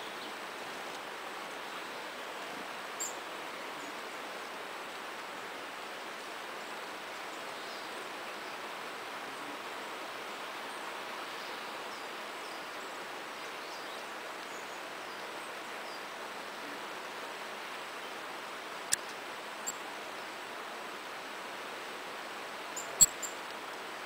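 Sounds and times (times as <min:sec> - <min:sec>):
stream babbling: 0:00.0 - 0:24.0
high-pitched bird calls: 0:22.8 - 0:23.4.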